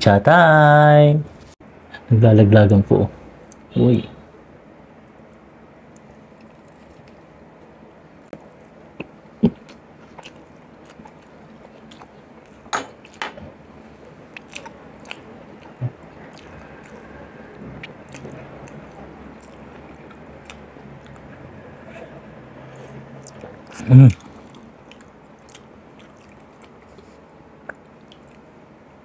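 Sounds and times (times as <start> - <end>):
man chewing and smacking: 5.1 - 21.5, 22.2 - 28.6
sharp mouth clicks: 27.6 - 28.4.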